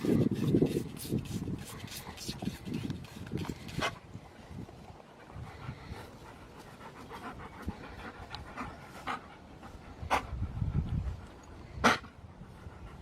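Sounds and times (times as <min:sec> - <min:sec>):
dog panting: 0:04.9 - 0:13.0.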